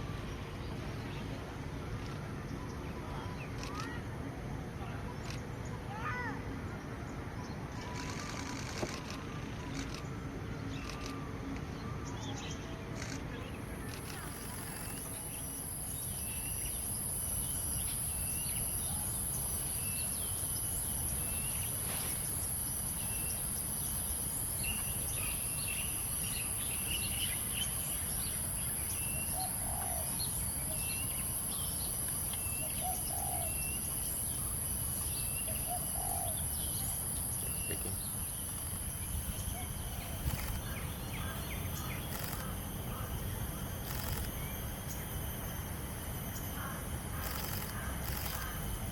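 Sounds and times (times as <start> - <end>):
steady high-pitched drone: 13.3 - 48.9
birds chirping: 22.9 - 45.6.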